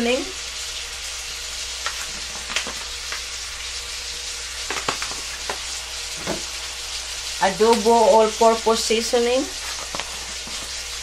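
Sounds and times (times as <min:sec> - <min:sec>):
meat sizzling in a wok: 0:00.0 - 0:11.0.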